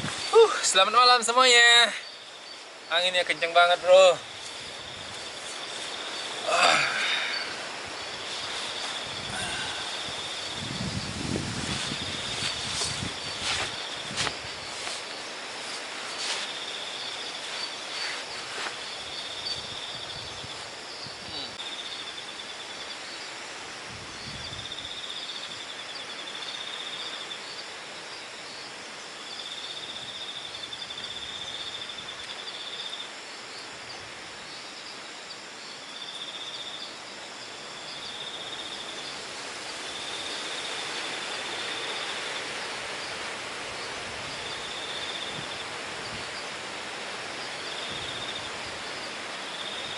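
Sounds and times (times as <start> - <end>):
strong wind blowing: 0.0 - 0.8, 4.2 - 5.4, 6.0 - 14.8, 18.9 - 21.6, 23.8 - 25.0, 39.5 - 47.0, 47.7 - 49.0
insects trilling: 0.0 - 49.9.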